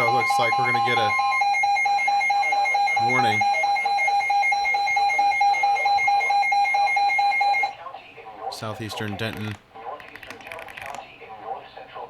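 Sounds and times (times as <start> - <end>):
pulsing electronic alarm tone: 0.0 - 7.8.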